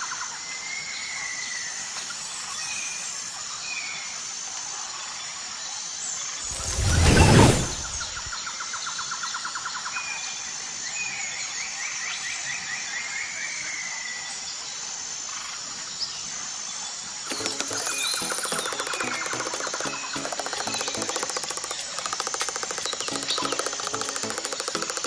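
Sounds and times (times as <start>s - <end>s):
loud whoosh: 6.5s - 8.3s
steady outdoor hiss: 13.0s - 25.0s
fast mechanical rattle: 17.3s - 25.0s.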